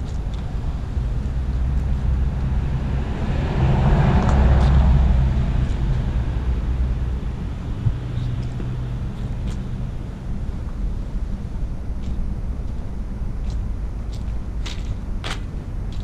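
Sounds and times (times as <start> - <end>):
motor vehicle passing: 0.0 - 10.4
low engine hum: 0.0 - 16.0.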